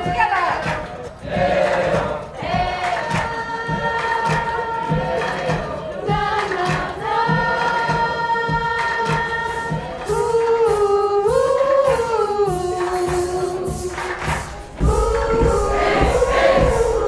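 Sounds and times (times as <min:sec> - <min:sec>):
voices singing long notes: 0:01.2 - 0:17.0
steady low beat: 0:13.7 - 0:17.0.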